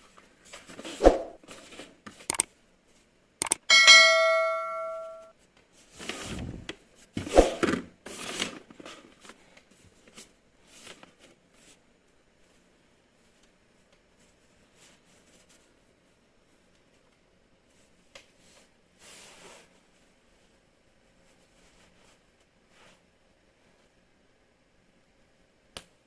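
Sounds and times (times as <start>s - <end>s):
ringing chime: 3.6s - 5.3s.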